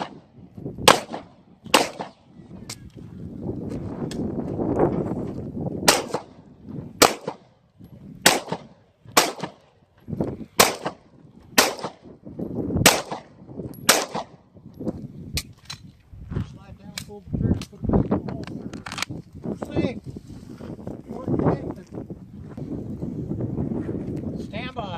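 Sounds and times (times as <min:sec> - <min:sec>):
pistol shots: 0:00.0 - 0:02.3, 0:05.8 - 0:06.4, 0:07.0 - 0:07.5, 0:08.2 - 0:09.7, 0:10.6 - 0:12.1, 0:12.8 - 0:14.4.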